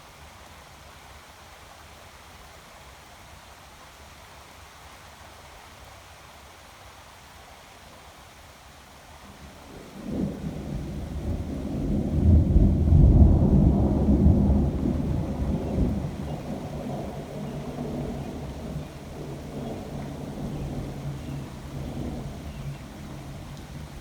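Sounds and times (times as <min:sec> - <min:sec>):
rain hiss: 0:00.0 - 0:24.0
thunder rumbling: 0:09.8 - 0:24.0.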